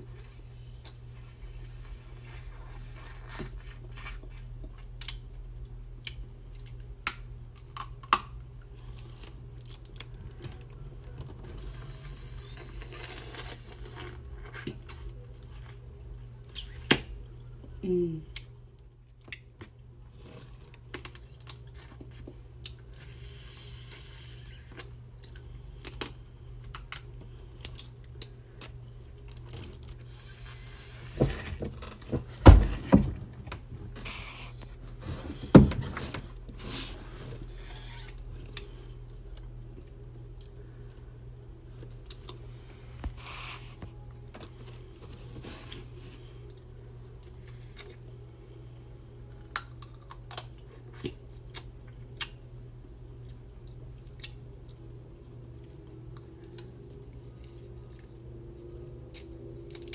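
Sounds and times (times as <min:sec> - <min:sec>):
steady low hum: 0:19.8 - 0:59.9.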